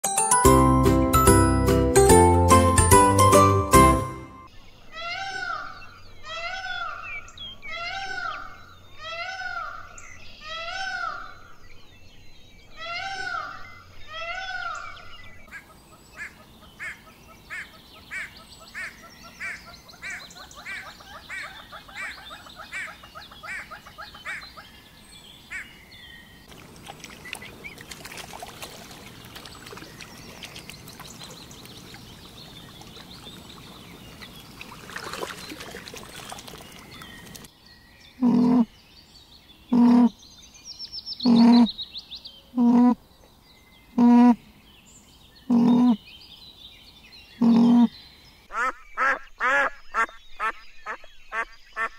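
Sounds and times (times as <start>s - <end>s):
outdoor noise: 4.4s - 51.9s
animal calls: 38.2s - 38.7s, 39.7s - 40.2s, 41.2s - 41.7s, 42.5s - 43.0s, 45.5s - 46.0s, 47.4s - 47.9s.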